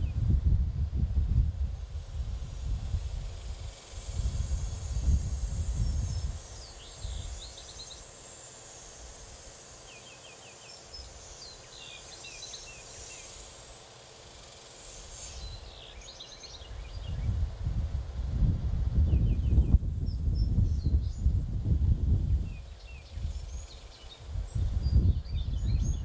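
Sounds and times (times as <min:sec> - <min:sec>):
small songbirds chirping: 0:03.6 - 0:17.4, 0:19.0 - 0:21.5, 0:22.1 - 0:26.0.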